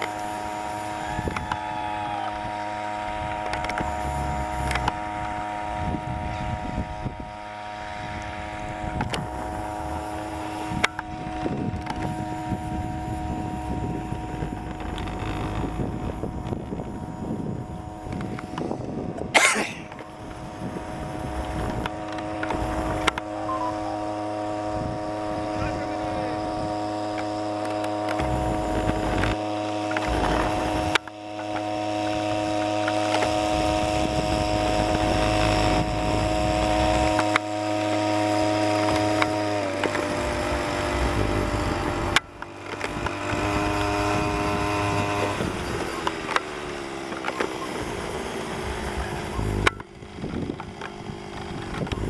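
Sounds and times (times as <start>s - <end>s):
small boat motor running: 0.0s - 52.0s.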